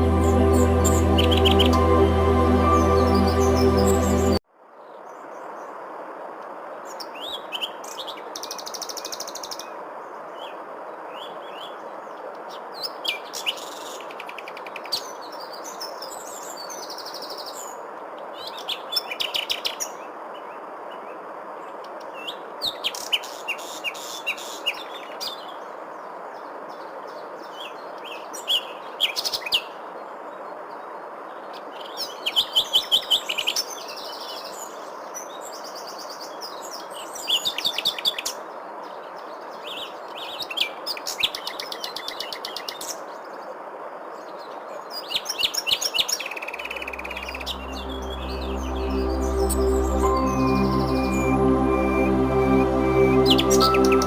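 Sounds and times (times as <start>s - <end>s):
songbirds chirping and trilling: 0.0s - 4.4s.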